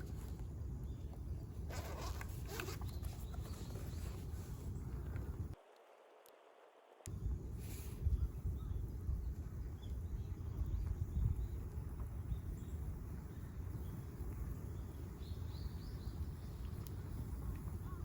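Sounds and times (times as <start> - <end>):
small birds chirping: 0.0 - 5.4, 8.0 - 18.0
steady low rumble: 3.8 - 5.6, 7.0 - 18.0.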